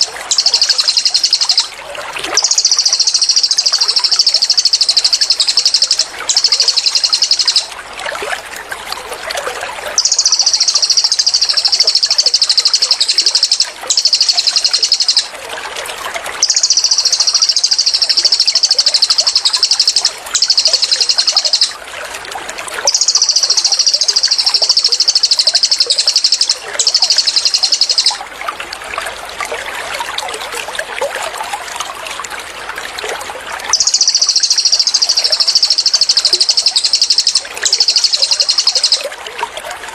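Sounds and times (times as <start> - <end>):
bird singing high trills: 0.0 - 1.8, 2.4 - 7.7, 10.0 - 15.3, 16.4 - 21.8, 22.8 - 28.2, 33.7 - 39.1
trickling water: 0.0 - 39.9.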